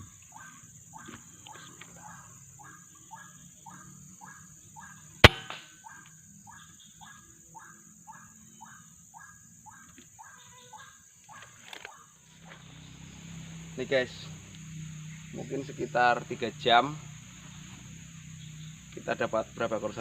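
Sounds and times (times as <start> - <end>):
loud sharp crack: 5.2 - 5.8.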